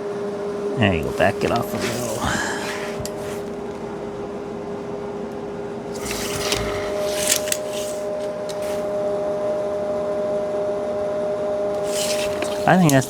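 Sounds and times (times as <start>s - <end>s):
two-tone hum: 0.0s - 13.0s
short scraping and clicking: 6.0s - 9.0s, 11.8s - 13.0s.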